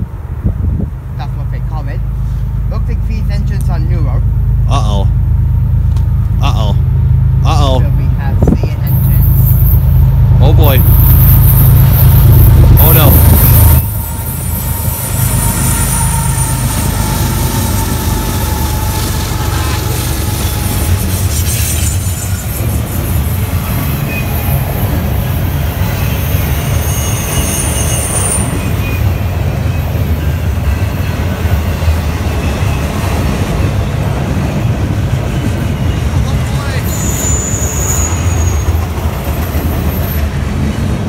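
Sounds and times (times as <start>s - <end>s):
freight train rolling past: 0.0s - 41.0s
low rumble of wheels on rail: 0.0s - 41.0s
high wheel squeals: 8.8s - 34.0s, 34.6s - 40.9s.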